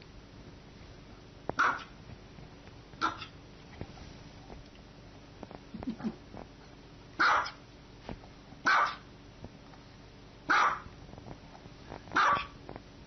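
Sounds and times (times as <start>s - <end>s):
small dog barking: 1.6s - 2.0s, 3.0s - 3.4s, 7.2s - 7.6s, 8.6s - 9.1s, 10.5s - 10.9s, 12.1s - 12.6s.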